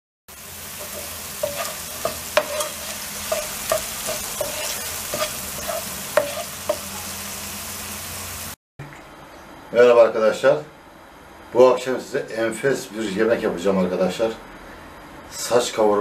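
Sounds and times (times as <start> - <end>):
meat sizzling in hot oil: 0.3 - 8.6
wooden spoon scraping a pan: 0.7 - 7.1.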